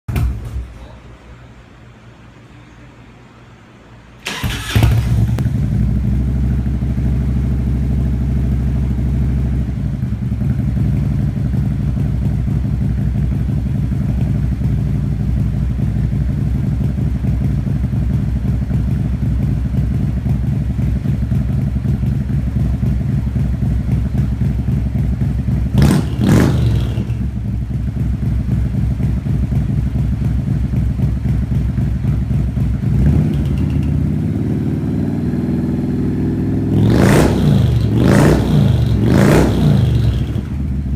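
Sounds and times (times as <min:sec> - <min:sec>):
motorcycle engine idling: 0:04.3 - 0:40.9.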